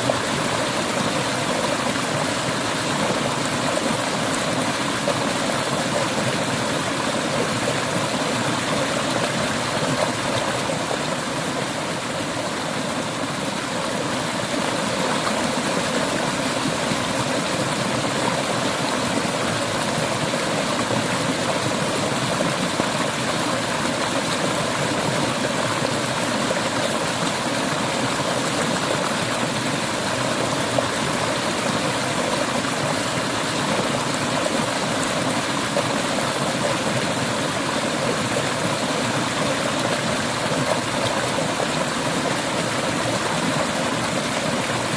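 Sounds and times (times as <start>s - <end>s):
river water rushing over rocks: 0.0s - 44.9s.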